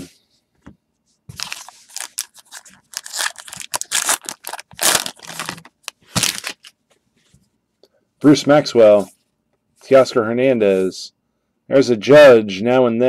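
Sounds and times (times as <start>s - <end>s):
cards and packaging rustling: 1.3s - 6.8s.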